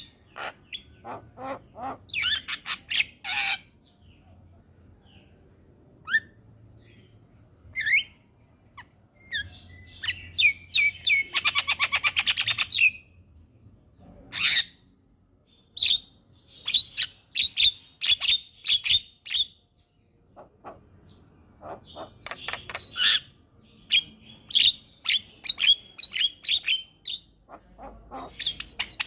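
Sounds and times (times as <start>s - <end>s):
myna chirps and squawks: 0.0s - 3.7s, 20.4s - 20.9s, 21.6s - 29.0s.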